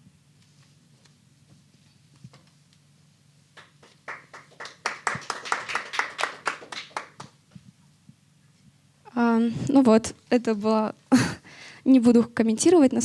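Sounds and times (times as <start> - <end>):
small audience clapping: 3.5 - 7.5.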